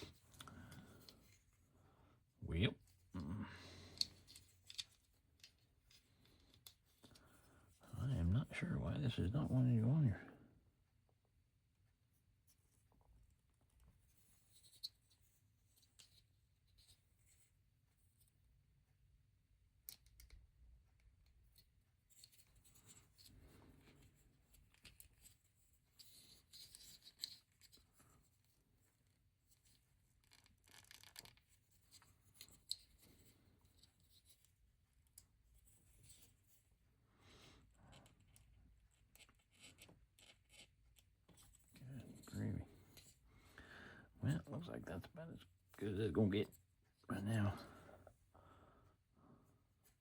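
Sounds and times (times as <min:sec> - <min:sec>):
plastic bricks scraping and clicking: 0:03.8 - 0:07.2, 0:29.6 - 0:34.4, 0:37.9 - 0:43.2
small plastic clicks: 0:19.8 - 0:20.5
plastic pieces rubbing and scraping: 0:29.5 - 0:34.6.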